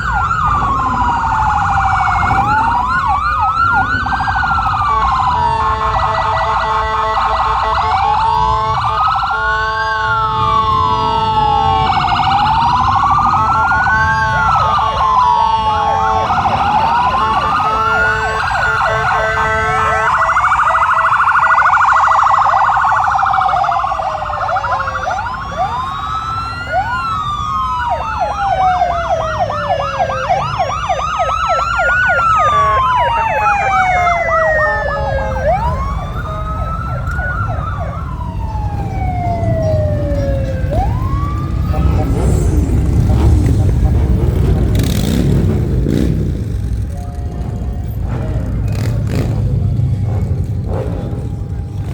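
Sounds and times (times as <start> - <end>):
siren fast yelp: 0.0 - 43.1
fire truck sirens wailing: 0.0 - 51.9
horn blast: 14.4 - 20.4, 40.6 - 51.9.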